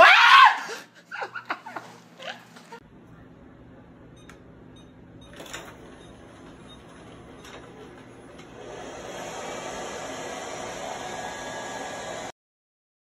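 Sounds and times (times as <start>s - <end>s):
robot vacuum cleaner humming: 8.1s - 12.3s.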